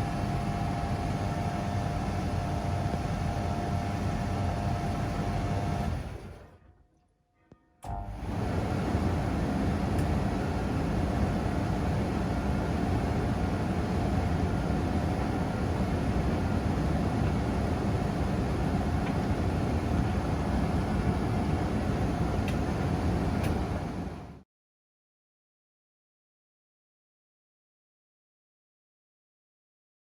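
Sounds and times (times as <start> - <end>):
laundry machine rumbling: 7.9 - 24.4.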